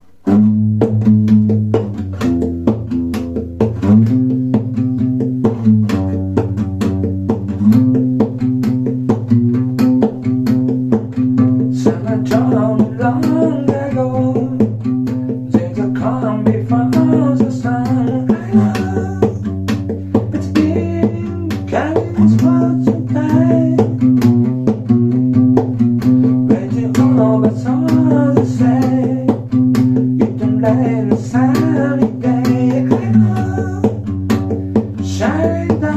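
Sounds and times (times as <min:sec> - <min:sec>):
plucked bass guitar notes: 0:00.0 - 0:35.9
person singing: 0:11.6 - 0:19.5, 0:20.1 - 0:24.1, 0:26.2 - 0:29.5, 0:30.1 - 0:34.1, 0:34.8 - 0:35.9.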